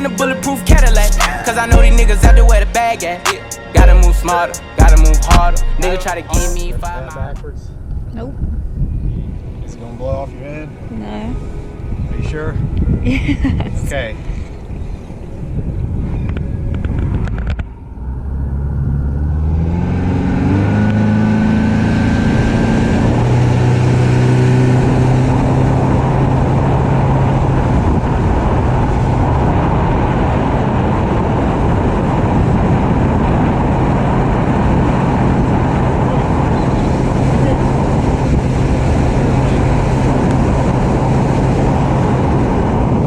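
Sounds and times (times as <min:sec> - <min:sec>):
rush of wind and water: 0:21.6 - 0:43.0.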